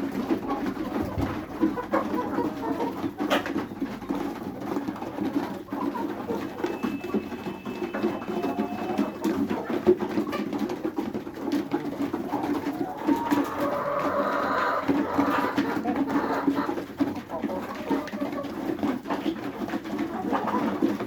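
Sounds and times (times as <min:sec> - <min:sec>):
hens clucking: 0:00.0 - 0:21.0
hen high call: 0:06.6 - 0:09.3.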